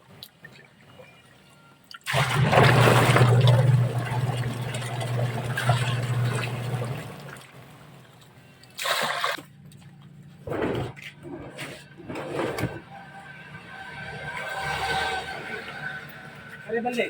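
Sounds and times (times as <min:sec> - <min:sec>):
water sloshing: 0:00.1 - 0:13.1
water splash: 0:01.9 - 0:07.7, 0:08.5 - 0:09.5
washing machine motor hum: 0:02.1 - 0:08.0.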